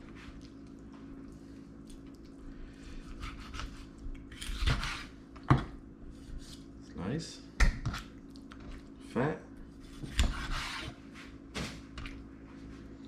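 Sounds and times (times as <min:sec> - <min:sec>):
steady low hum: 0:00.0 - 0:13.0
knife cutting raw chicken: 0:03.1 - 0:05.1.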